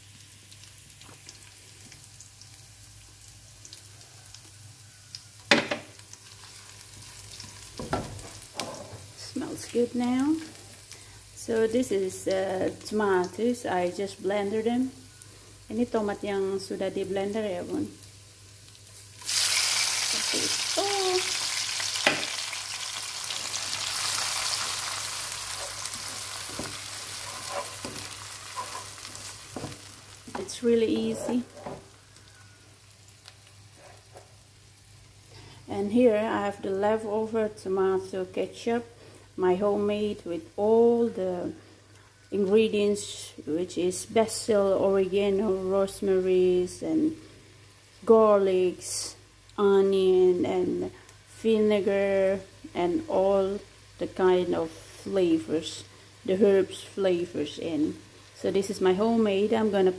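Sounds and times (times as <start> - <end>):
frying in oil sizzle: 0.0 - 59.9
spatula scraping a pan: 25.5 - 29.7.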